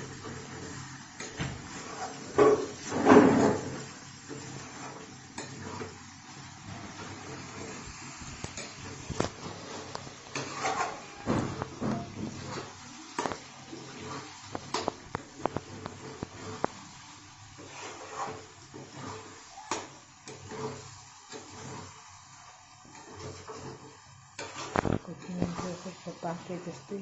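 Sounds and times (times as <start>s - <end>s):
gas flame hissing: 0.0s - 27.0s
spoon scraping a pot: 6.8s - 17.0s, 17.6s - 25.9s.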